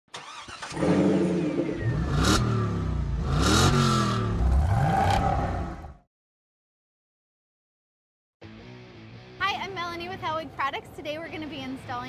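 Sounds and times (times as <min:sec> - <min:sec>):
car engine revving: 0:00.2 - 0:06.0.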